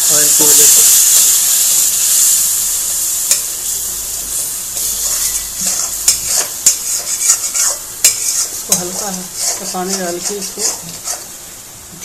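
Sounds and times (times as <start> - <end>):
paste sizzling in hot oil: 0.0 - 12.0
spatula scraping pan: 4.8 - 11.4.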